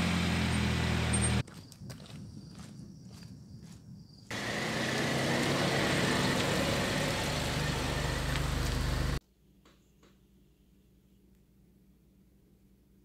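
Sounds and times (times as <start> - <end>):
car engine rolling past: 4.3 - 9.2.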